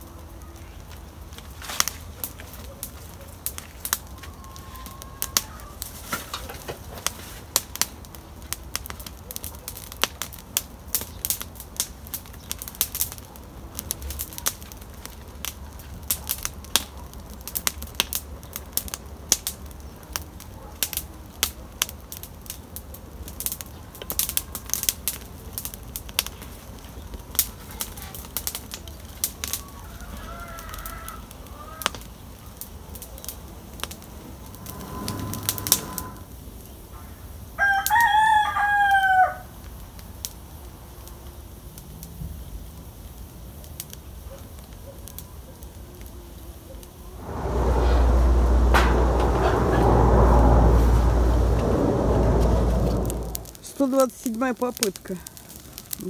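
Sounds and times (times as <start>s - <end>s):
campfire crackling and popping: 0.0s - 36.8s, 39.2s - 56.0s
rooster crowing: 29.6s - 31.9s, 37.6s - 39.5s
faint fowl calls: 29.6s - 32.0s.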